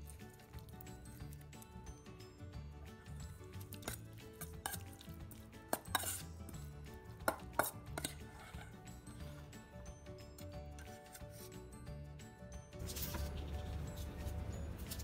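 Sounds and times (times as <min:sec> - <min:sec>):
metal ladle scraping bowl: 0:03.8 - 0:05.1, 0:05.7 - 0:06.3, 0:07.3 - 0:08.8.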